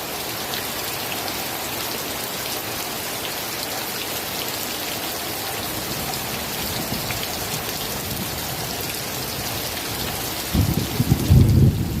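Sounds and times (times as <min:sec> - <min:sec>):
rain hissing: 0:00.0 - 0:12.0.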